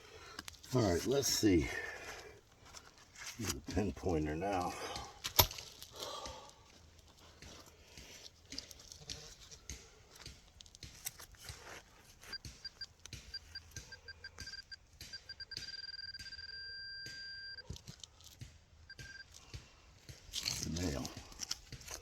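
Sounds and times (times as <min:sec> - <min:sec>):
digging in soil: 0:00.0 - 0:22.0
metal detector beeping: 0:12.2 - 0:18.0, 0:18.8 - 0:19.4.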